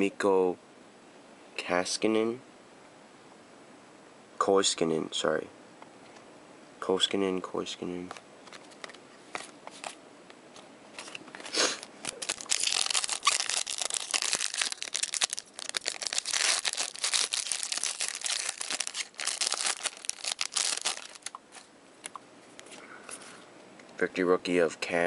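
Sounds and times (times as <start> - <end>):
wrapper crinkling and tearing: 11.0 - 21.7.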